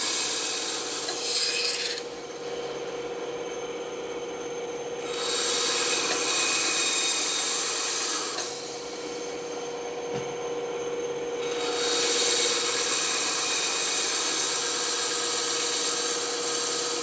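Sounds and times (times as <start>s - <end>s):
saw blade cutting wood: 0.0s - 2.2s, 5.0s - 9.0s, 11.4s - 17.0s
band saw humming: 0.0s - 17.0s.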